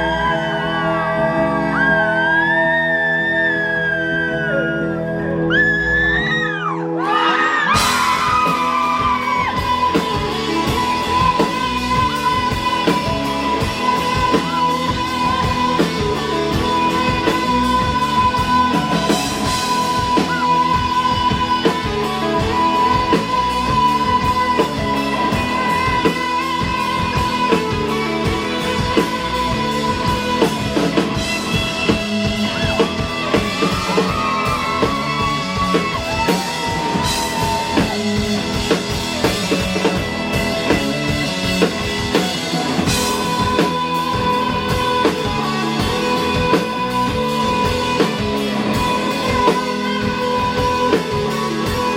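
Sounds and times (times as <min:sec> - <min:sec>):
live rock band playing: 0:00.0 - 0:51.9.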